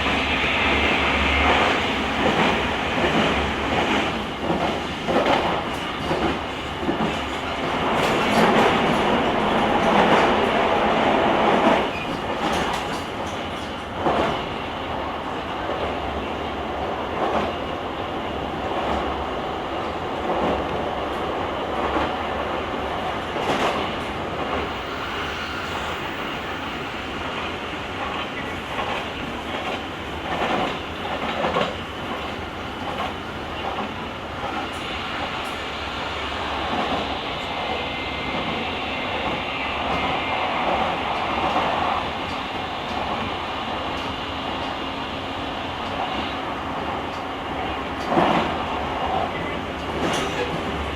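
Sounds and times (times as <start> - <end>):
train wheels rumbling: 0.0 - 50.9
rail-joint clatter: 11.4 - 14.4, 25.3 - 35.6, 48.0 - 50.9.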